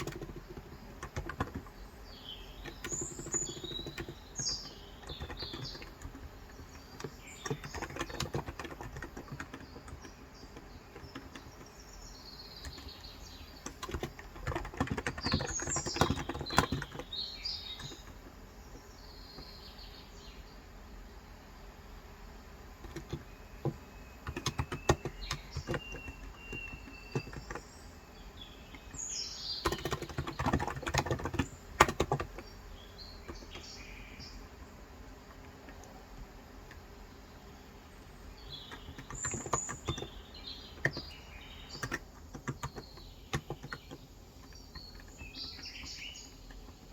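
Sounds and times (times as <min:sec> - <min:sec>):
typing on a keyboard: 0:00.0 - 0:11.8, 0:12.5 - 0:18.3, 0:22.8 - 0:27.8, 0:28.6 - 0:32.6, 0:33.2 - 0:33.7, 0:35.2 - 0:36.9, 0:38.4 - 0:46.9
birds chirping: 0:00.0 - 0:46.9.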